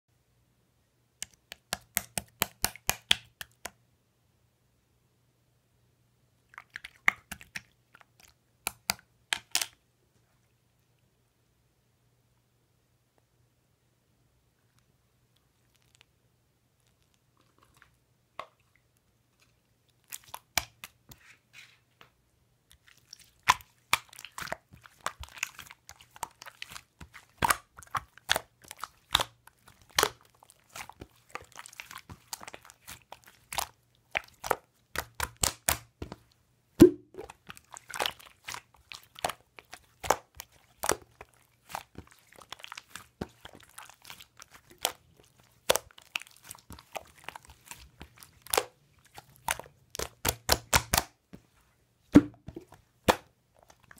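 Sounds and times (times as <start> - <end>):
slime crackling and popping: 1.2 - 3.6, 20.0 - 21.0, 22.7 - 51.2, 52.6 - 53.9.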